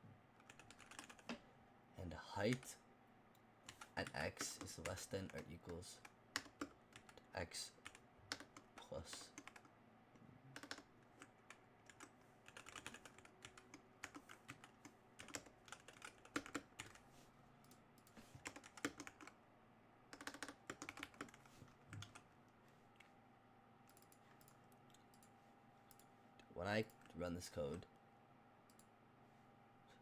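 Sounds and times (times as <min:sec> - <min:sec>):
computer keyboard typing: 0:00.4 - 0:01.4, 0:03.7 - 0:07.2, 0:07.8 - 0:09.7, 0:10.6 - 0:17.0, 0:17.6 - 0:19.4, 0:20.1 - 0:22.2.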